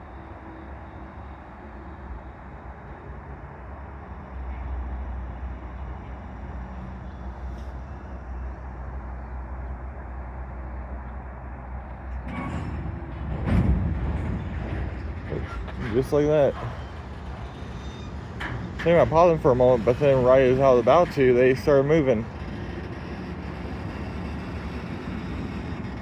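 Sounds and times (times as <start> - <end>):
freight train rumbling past: 11.6 - 26.0.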